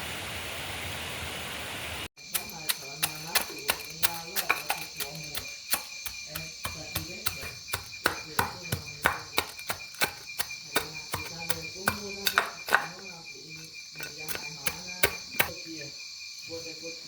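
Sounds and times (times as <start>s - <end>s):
insects chirring: 2.2s - 17.0s
sharp taps and clicks: 2.3s - 13.0s.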